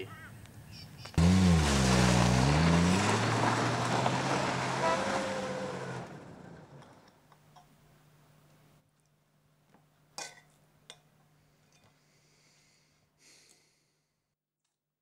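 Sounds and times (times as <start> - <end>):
car engine revving: 1.2 - 7.0
tyres spinning on dirt: 1.2 - 7.1.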